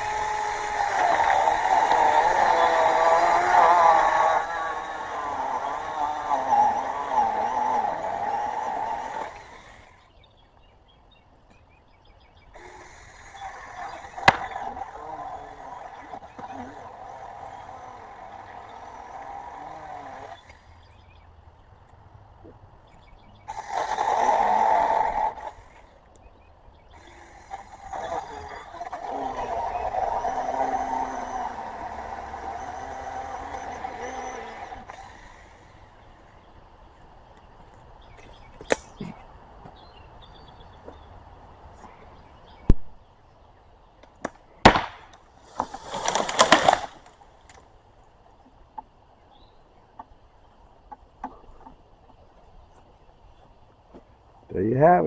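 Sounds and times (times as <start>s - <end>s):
mini chainsaw cutting wood: 0.0s - 10.2s, 12.6s - 20.9s, 23.4s - 26.0s, 26.9s - 36.5s, 44.2s - 47.7s.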